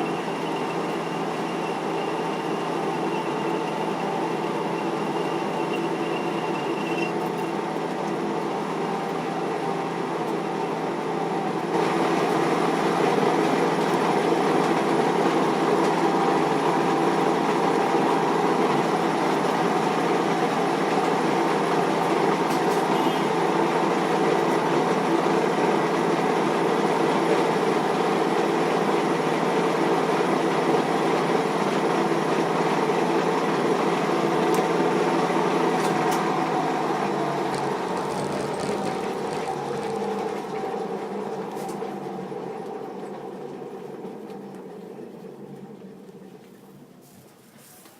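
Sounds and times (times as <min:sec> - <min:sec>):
metal lathe running: 0:32.8 - 0:42.1.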